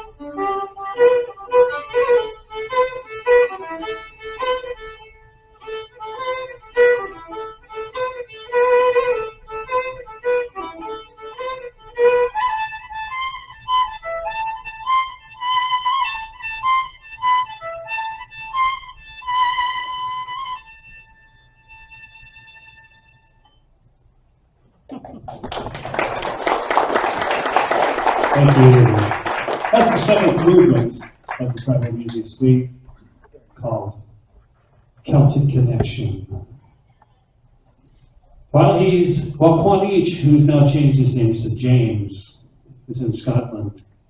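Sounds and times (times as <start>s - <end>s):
fast fiddle tune: 0.0s - 23.4s, 28.4s - 32.5s, 38.6s - 42.1s.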